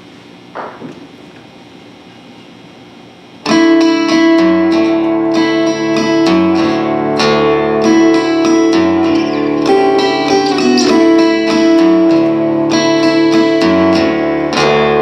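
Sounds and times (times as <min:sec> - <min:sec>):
plucked guitar-like string music: 0:03.4 - 0:15.0.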